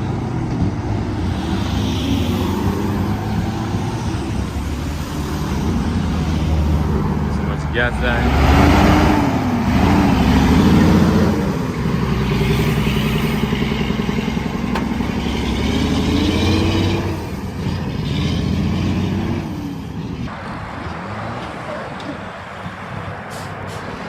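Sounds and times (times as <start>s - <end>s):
engine revving hard: 1.1s - 19.9s.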